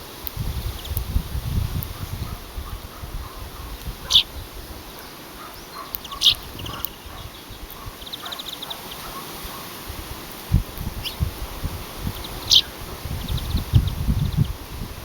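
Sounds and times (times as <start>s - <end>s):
wind rumble on microphone: 0.0s - 4.9s, 5.7s - 8.2s, 9.0s - 15.0s
small birds chirping: 0.6s - 1.1s, 1.8s - 9.9s, 10.7s - 14.7s
bird trill: 4.0s - 4.3s, 5.0s - 9.7s, 12.2s - 14.5s.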